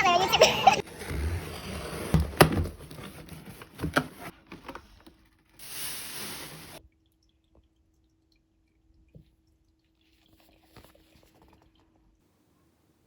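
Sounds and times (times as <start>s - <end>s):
knocks and handling noises: 0.9s - 5.2s
water hissing: 5.6s - 6.8s.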